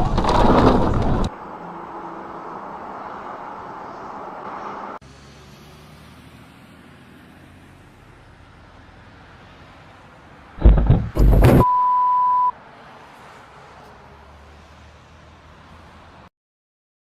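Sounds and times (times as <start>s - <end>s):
road and engine noise in car: 0.0s - 16.3s
loud collision: 10.6s - 11.7s
steady high beep: 11.6s - 12.5s.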